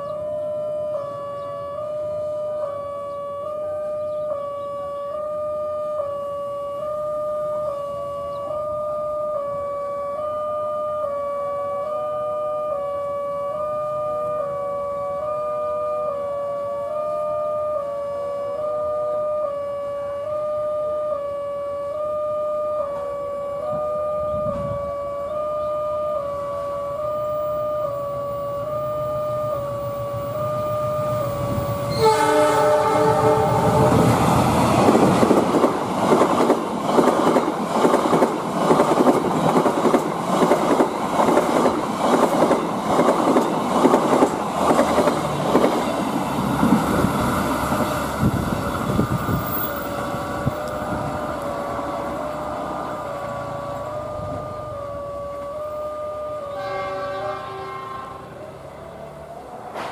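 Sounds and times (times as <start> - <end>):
locomotive horn: 0.0 - 35.7, 48.9 - 59.9
wavering two-pitch tone: 21.8 - 35.6, 48.9 - 57.0
wheels clickety-clack over rail joints: 33.7 - 54.0, 59.7 - 59.9.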